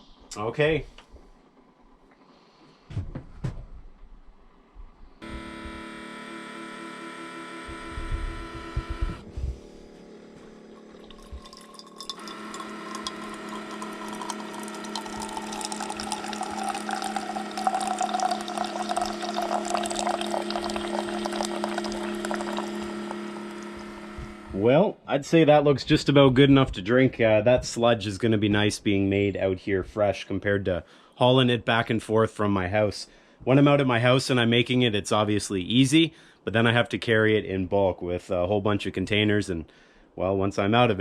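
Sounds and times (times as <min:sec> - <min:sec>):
coffee maker pump humming: 0:05.2 - 0:24.6
coffee streaming into mug: 0:10.6 - 0:24.5.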